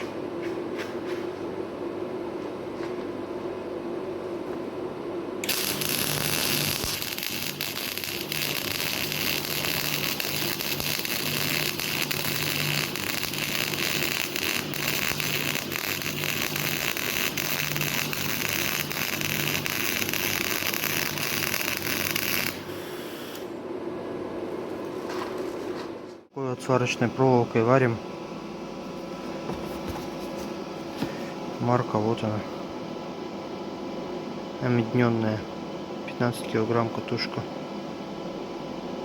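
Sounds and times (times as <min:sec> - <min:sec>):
welding arc crackling: 0:05.4 - 0:23.4.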